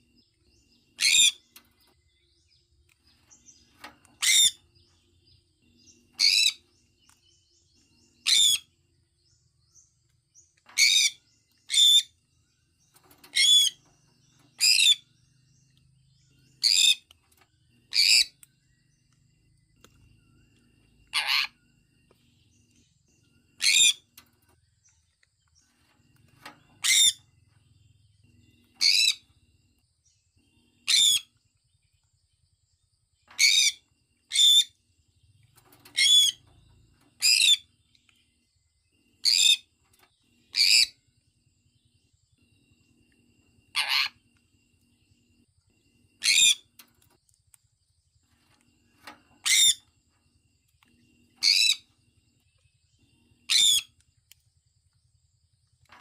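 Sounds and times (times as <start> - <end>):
parrot chirping calls: 1.0 - 1.5, 4.2 - 4.6, 8.2 - 8.7, 13.3 - 13.8, 17.9 - 18.4, 21.1 - 21.6, 23.6 - 24.1, 26.8 - 27.3, 28.8 - 29.2, 30.8 - 31.3, 33.4 - 34.8, 40.5 - 41.0, 43.7 - 44.2, 46.2 - 46.7, 49.4 - 49.9, 51.4 - 51.9, 53.4 - 54.0.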